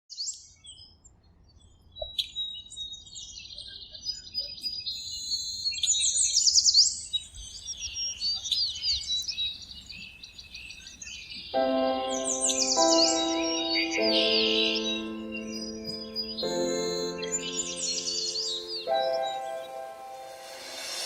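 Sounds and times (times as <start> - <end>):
birds chirping and singing: 2.2 - 21.0.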